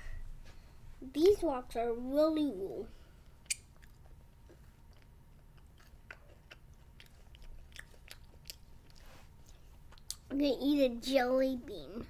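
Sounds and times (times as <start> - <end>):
faint chewing of candy: 3.2 - 10.3
sharp mouth clicks: 3.4 - 4.0.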